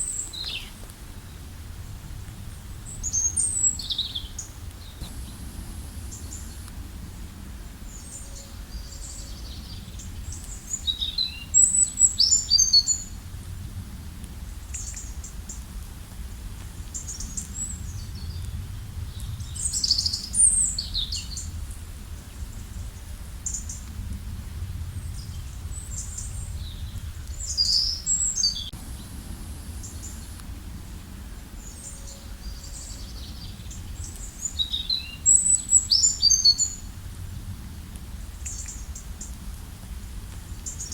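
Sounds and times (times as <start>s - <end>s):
songbirds chirping: 0.0s - 1.6s, 2.3s - 13.2s, 24.9s - 37.0s
steady low rumble: 0.0s - 10.9s, 13.1s - 34.6s, 36.8s - 40.9s.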